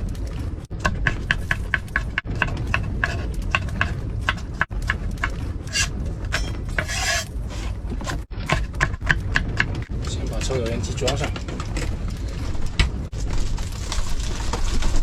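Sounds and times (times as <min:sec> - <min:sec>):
strong wind rumble: 0:00.0 - 0:15.0
kitchen prep strokes: 0:05.7 - 0:08.7.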